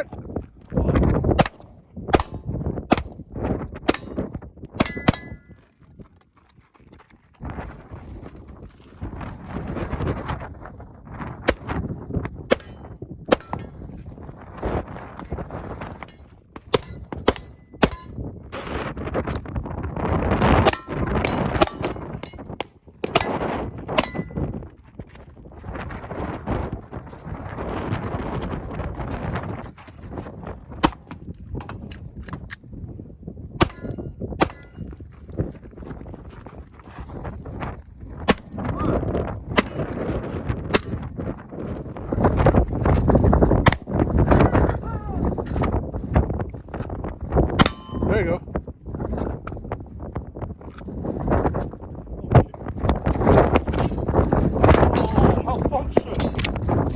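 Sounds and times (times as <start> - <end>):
wind buffeting on microphone: 0.0 - 56.9
metallic ring: 4.8 - 5.6, 23.0 - 24.6, 47.6 - 48.1
gunshots: 20.6 - 22.4.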